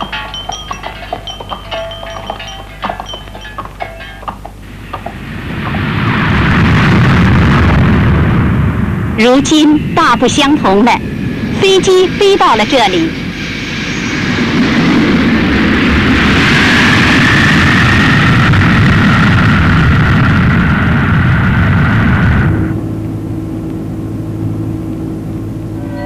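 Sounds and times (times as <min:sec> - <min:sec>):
quieter steady tones: 0:00.0 - 0:16.2, 0:22.5 - 0:26.0
aircraft engines roaring: 0:00.0 - 0:26.0.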